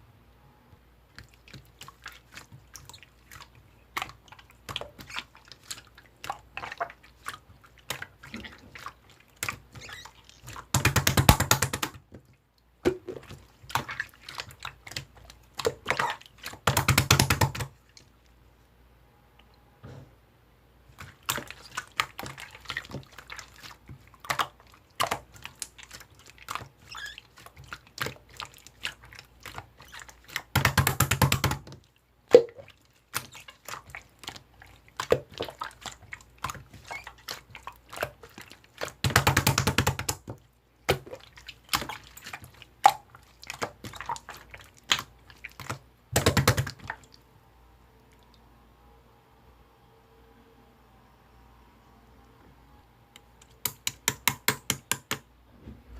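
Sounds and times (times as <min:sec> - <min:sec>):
slime squished by hand: 0:01.1 - 0:18.2, 0:20.9 - 0:47.2.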